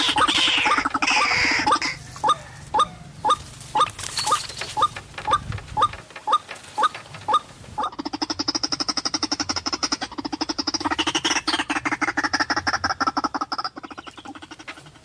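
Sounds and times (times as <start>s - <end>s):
waterhen calling: 0.0s - 15.0s.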